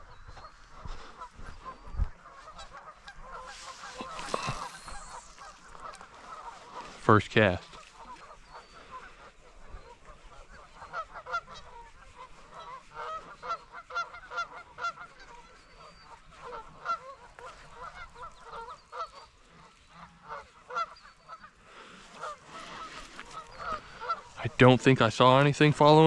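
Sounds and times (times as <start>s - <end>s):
geese honking: 0.4s - 25.8s.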